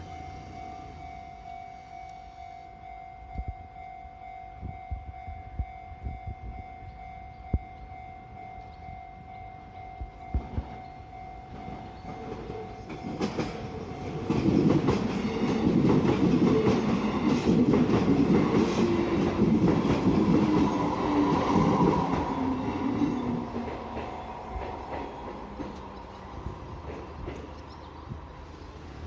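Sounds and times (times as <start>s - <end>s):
crossing warning signal tone: 0.0s - 17.4s
train wheels clattering over rails: 11.5s - 28.0s.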